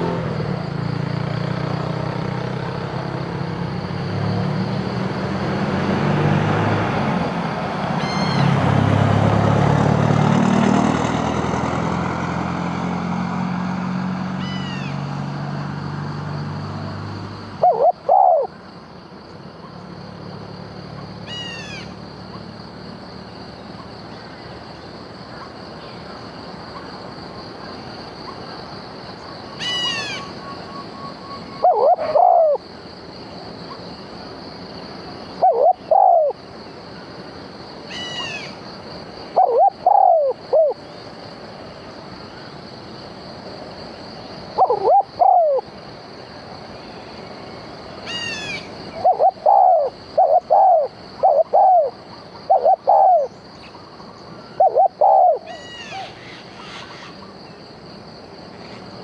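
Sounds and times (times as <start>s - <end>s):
short hooting bird calls: 17.6s - 18.5s, 29.6s - 32.6s, 35.4s - 36.4s, 39.4s - 40.8s, 44.6s - 45.6s, 48.1s - 53.4s, 54.4s - 57.1s.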